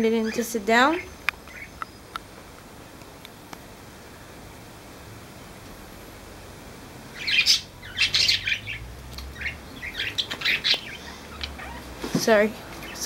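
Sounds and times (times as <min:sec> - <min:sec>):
parrots chirping harshly: 0:00.2 - 0:02.1, 0:07.1 - 0:12.0.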